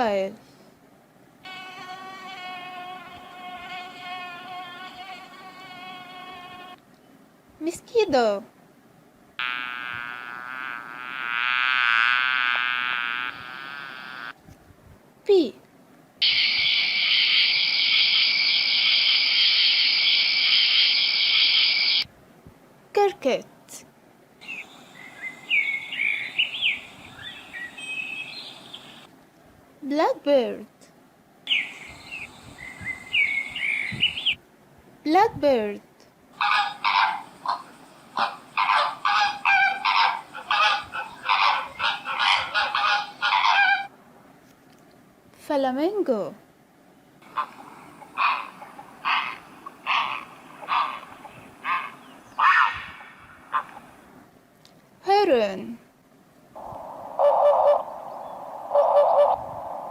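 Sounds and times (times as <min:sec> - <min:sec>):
cricket chirring: 0:09.4 - 0:14.3, 0:16.2 - 0:22.1, 0:24.4 - 0:29.1, 0:36.4 - 0:40.7, 0:56.6 - 0:59.9
bird harsh rasping calls: 0:16.2 - 0:22.1, 0:36.4 - 0:43.9, 0:47.2 - 0:53.9.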